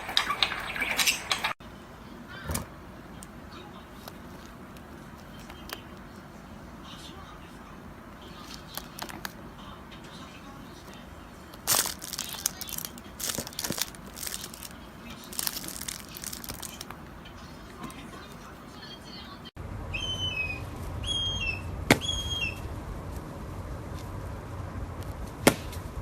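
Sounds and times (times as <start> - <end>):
wings fluttering and rustling: 0.0 - 1.6, 11.6 - 17.0
short high bird chirps: 19.9 - 22.6.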